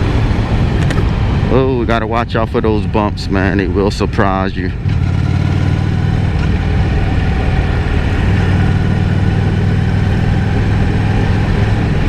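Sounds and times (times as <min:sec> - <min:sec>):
motorcycle engine running: 0:00.0 - 0:01.5, 0:03.1 - 0:12.0
wind noise: 0:00.0 - 0:05.0.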